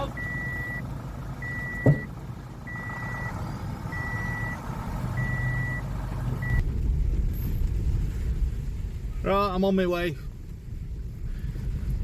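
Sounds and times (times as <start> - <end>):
vehicle engine running: 0.0 - 9.2
reversing alarm beeping: 0.2 - 0.8, 1.4 - 2.1, 2.7 - 4.6, 5.2 - 5.8.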